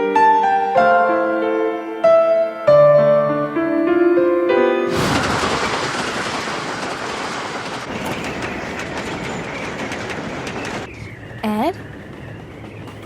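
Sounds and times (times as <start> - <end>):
train rushing along track: 4.9 - 13.0
wheels clacking over rail joints: 4.9 - 13.0.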